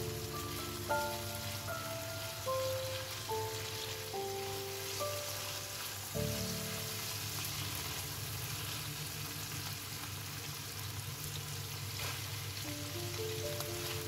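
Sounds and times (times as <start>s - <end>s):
food sizzling in oil: 0.0s - 14.0s
spatula stirring in pan: 0.3s - 9.1s.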